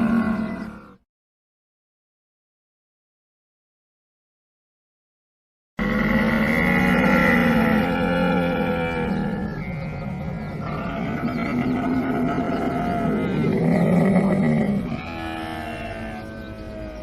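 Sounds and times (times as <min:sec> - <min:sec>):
camel bellowing and growling: 0:00.0 - 0:01.0, 0:05.8 - 0:17.0.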